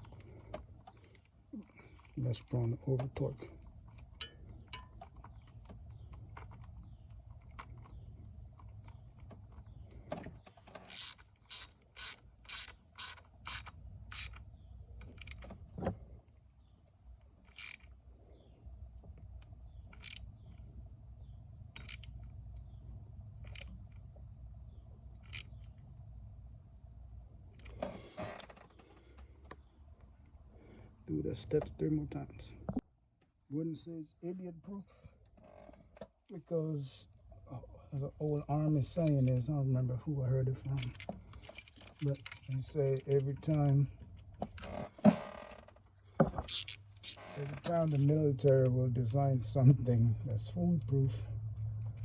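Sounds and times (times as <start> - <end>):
ratchet clicking: 10.8 - 14.4, 15.0 - 15.4, 17.4 - 17.9, 19.9 - 20.3, 21.7 - 22.2, 23.4 - 23.8, 25.2 - 25.7, 46.5 - 47.2.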